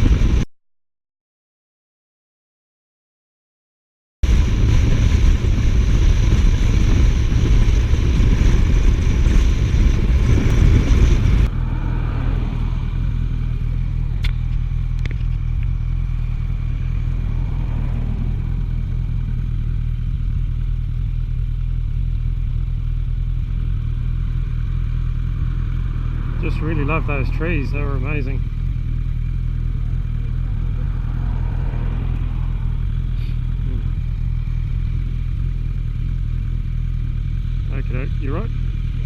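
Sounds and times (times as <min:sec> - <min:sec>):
motorcycle engine running: 0:00.0 - 0:00.5, 0:04.2 - 0:39.0
wind rush: 0:00.0 - 0:00.5, 0:04.2 - 0:14.4, 0:16.7 - 0:19.4, 0:29.8 - 0:34.8.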